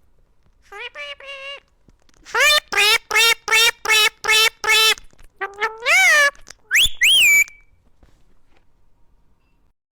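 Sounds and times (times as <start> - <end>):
bird calling: 2.3 - 7.6.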